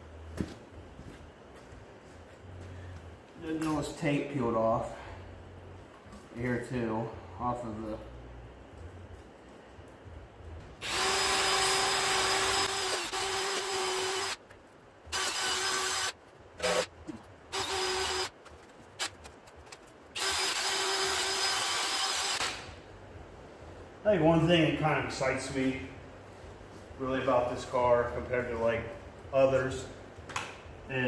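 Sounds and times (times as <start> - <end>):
power drill whining and grinding: 10.8 - 14.4, 15.1 - 16.9, 17.5 - 18.4, 20.2 - 22.6.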